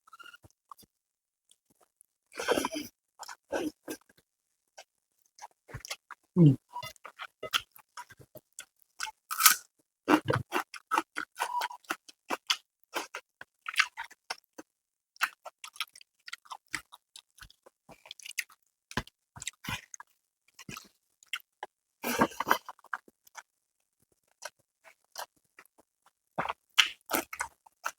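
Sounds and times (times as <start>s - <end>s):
person chewing food: 5.4s - 23.5s, 24.2s - 27.9s.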